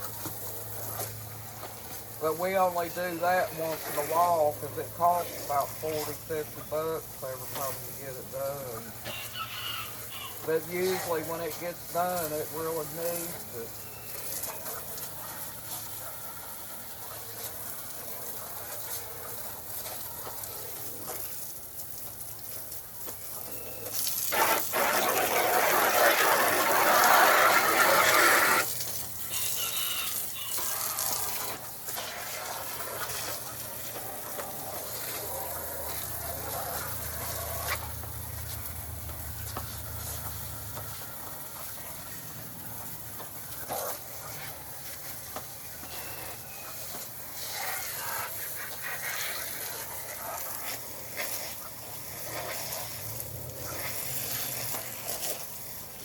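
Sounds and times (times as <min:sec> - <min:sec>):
water spraying from hose: 0:00.0 - 0:56.0
poultry clucking: 0:05.2 - 0:12.2, 0:26.2 - 0:38.6, 0:45.4 - 0:49.4.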